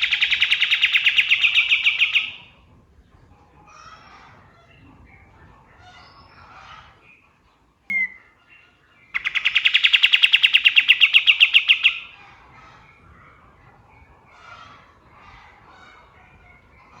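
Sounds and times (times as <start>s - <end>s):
bird chattering calls: 0.0s - 2.4s, 9.2s - 12.1s
bird rapid trill: 9.2s - 12.1s.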